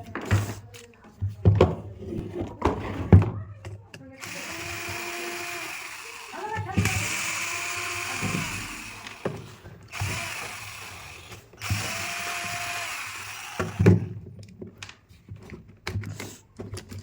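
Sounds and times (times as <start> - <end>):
power drill-driver running: 4.2 - 14.2.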